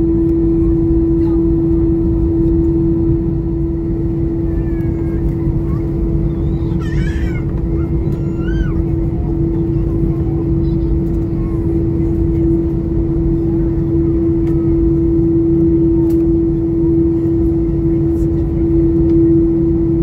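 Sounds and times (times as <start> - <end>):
airplane cabin rumble: 0.0 - 20.0.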